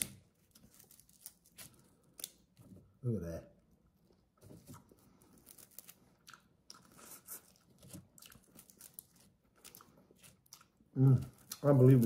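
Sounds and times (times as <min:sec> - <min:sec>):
person chewing prawn: 0:04.8 - 0:12.0.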